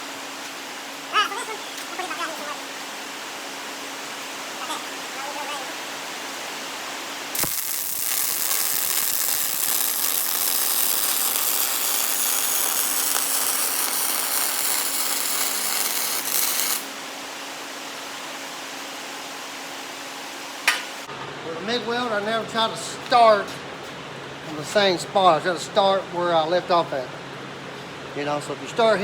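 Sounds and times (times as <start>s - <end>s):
welding arc sizzling: 7.3s - 17.0s
welding arc striking click: 7.4s - 16.9s.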